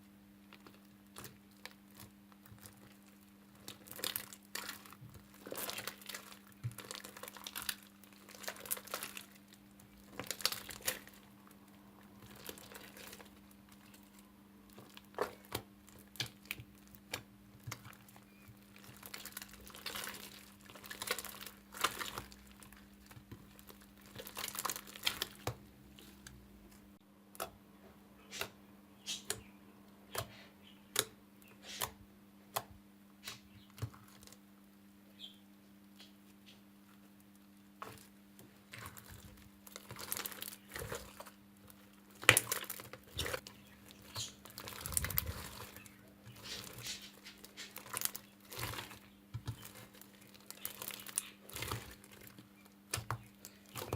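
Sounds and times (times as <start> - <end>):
slime crackling and popping: 0.5 - 26.2, 37.1 - 53.9.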